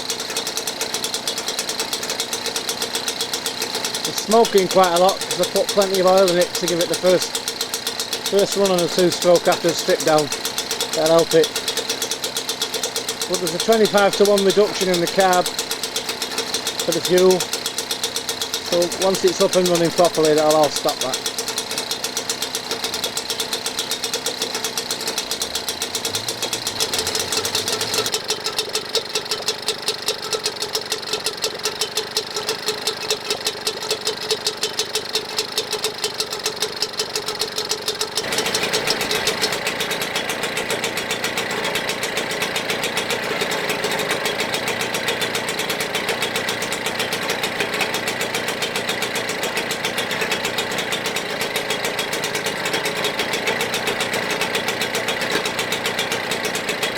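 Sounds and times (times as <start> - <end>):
two-stroke outboard motor running: 0.0 - 56.9.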